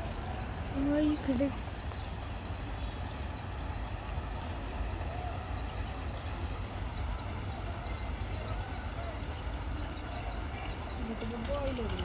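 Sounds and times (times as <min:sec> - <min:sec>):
tractor engines rumbling: 0:00.0 - 0:12.0.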